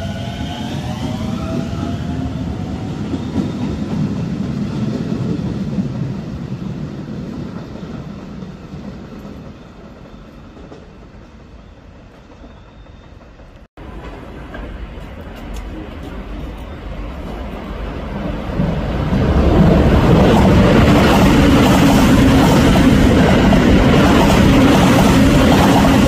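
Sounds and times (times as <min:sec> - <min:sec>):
wheels rumbling on rail: 0:00.0 - 0:26.0.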